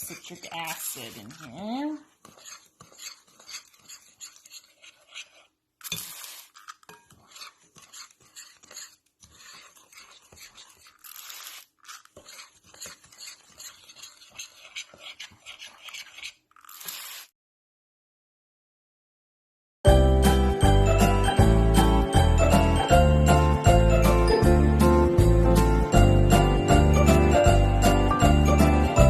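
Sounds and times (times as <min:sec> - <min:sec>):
spoon scraping powder in bowl: 0:00.0 - 0:17.3
spray bottle spritzes: 0:05.8 - 0:07.5, 0:16.6 - 0:17.3.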